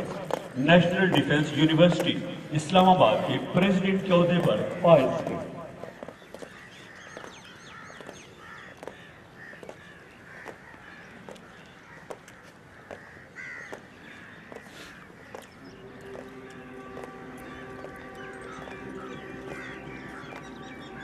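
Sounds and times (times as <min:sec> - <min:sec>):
birds calling: 0:00.0 - 0:21.0
harsh bird call: 0:12.8 - 0:21.0.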